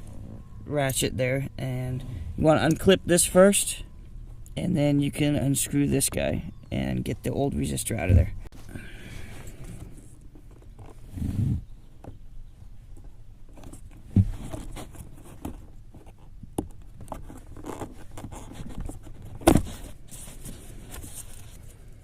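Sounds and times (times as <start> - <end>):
plastic plug rustling and scraping: 13.5 - 21.8.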